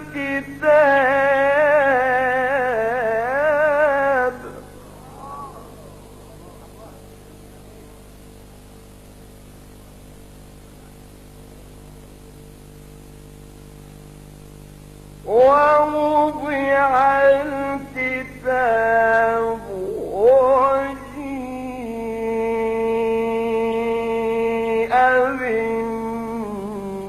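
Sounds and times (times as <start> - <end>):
man chanting recitation: 0.0 - 8.1, 15.2 - 27.0
low steady hum: 0.0 - 27.0.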